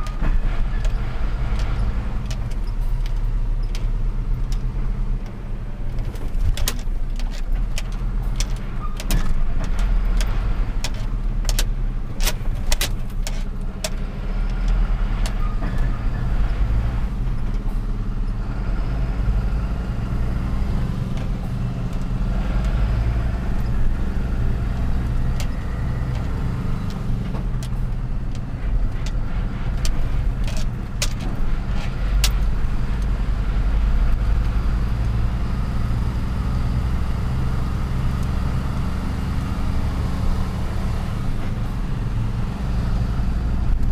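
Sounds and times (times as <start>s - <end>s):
sharp clicks and rattles: 0.0s - 18.9s, 20.4s - 36.0s
truck engine running: 0.0s - 43.9s.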